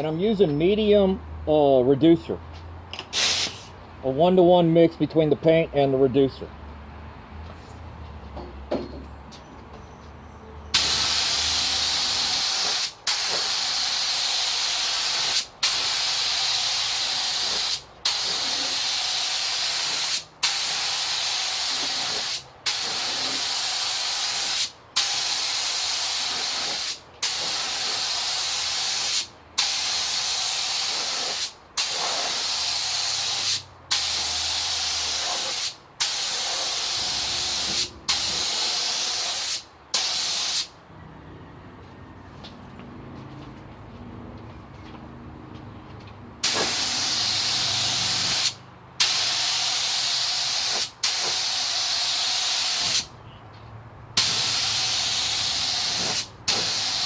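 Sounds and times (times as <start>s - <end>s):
spray gun air hissing: 3.1s - 3.7s, 10.7s - 40.7s, 46.4s - 53.1s, 54.2s - 57.0s.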